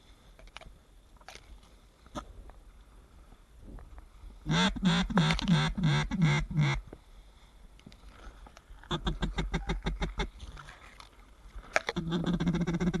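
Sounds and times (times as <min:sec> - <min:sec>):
duck call quacks: 0:04.5 - 0:06.8, 0:08.9 - 0:10.4, 0:11.9 - 0:13.0.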